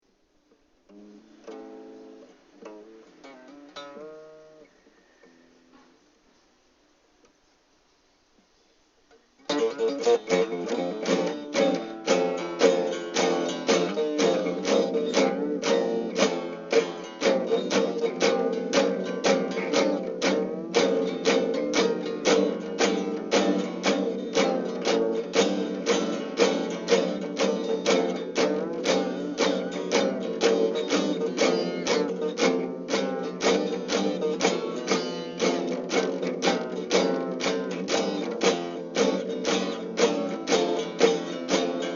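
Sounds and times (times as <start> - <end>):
guitar fast strumming: 9.5 - 41.9.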